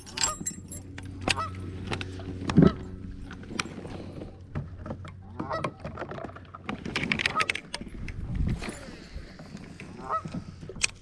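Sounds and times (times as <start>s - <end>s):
geese honking: 1.1s - 6.6s, 9.9s - 10.5s.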